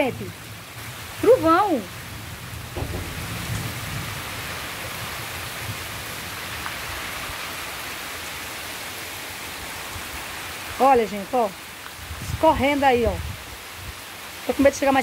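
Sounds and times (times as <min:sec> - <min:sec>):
heavy rain on ground and roof: 0:00.0 - 0:15.0
low rumble: 0:02.7 - 0:05.5.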